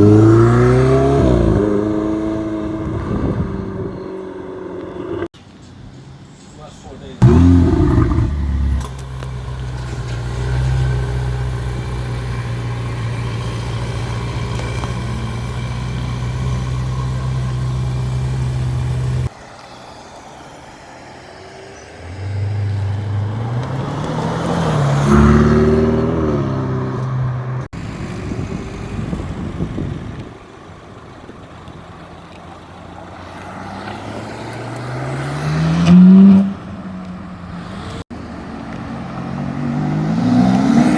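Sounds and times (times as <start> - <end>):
car engine revving: 0.0 - 5.3, 7.2 - 19.3, 22.0 - 27.7
car accelerating with gear shifts: 7.2 - 19.3, 22.4 - 30.4, 31.1 - 40.9.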